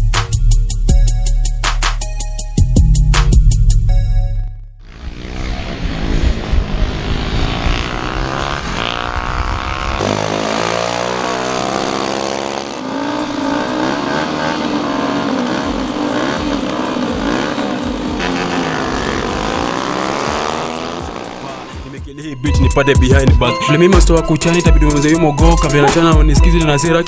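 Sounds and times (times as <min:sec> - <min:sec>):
racing motorcycles passing: 0:04.8 - 0:22.1.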